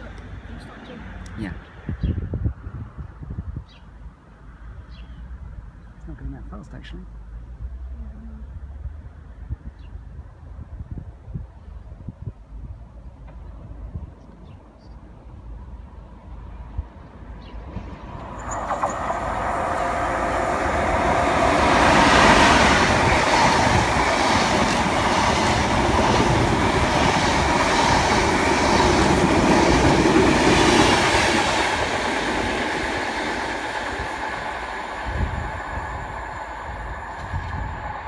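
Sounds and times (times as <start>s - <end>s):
train wheels clattering on rail: 17.7s - 19.7s, 20.6s - 35.4s.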